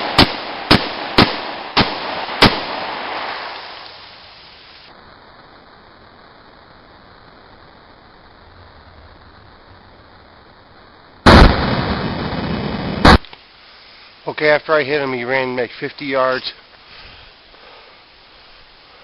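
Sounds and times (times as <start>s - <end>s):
pistol shots with echo: 0.0s - 2.9s.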